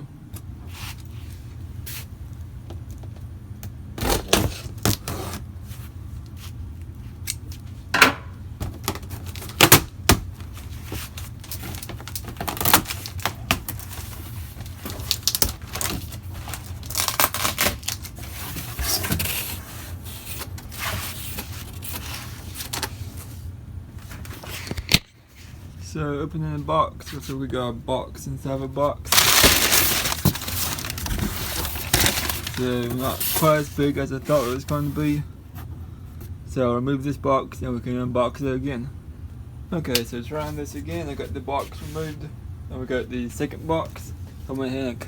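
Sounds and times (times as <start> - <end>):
steady low hum: 0.0 - 45.0
cardboard and tape tearing: 4.0 - 5.4, 11.1 - 22.9, 29.1 - 33.6.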